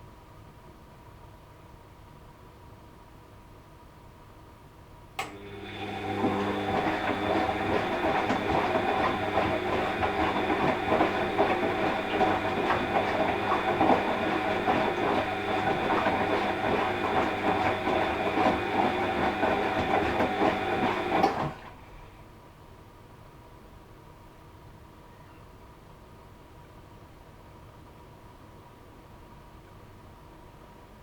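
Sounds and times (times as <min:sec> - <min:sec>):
washing machine drum rattling: 0:06.2 - 0:21.6.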